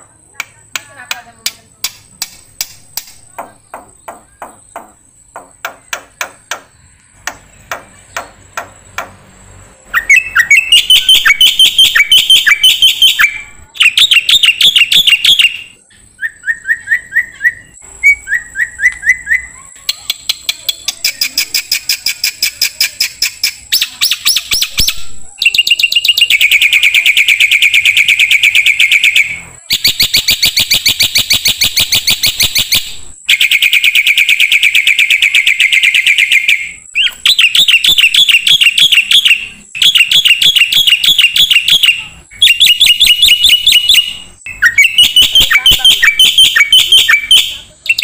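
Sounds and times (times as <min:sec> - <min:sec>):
myna rattling chatter: 0:43.6 - 0:48.0.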